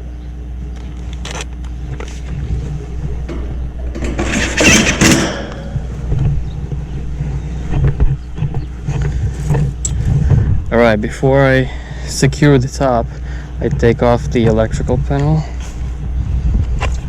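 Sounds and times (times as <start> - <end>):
steady low rumble: 0.0 - 17.0
metal scraping: 1.8 - 10.5
sheet metal panels being handled: 1.9 - 7.9.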